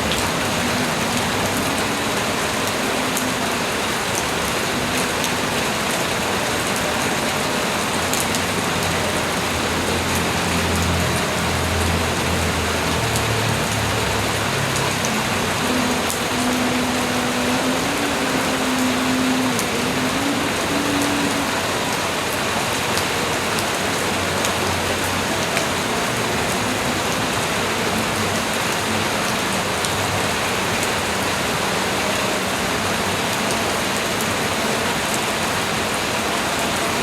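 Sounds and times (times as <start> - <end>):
rain falling: 0.0 - 37.0.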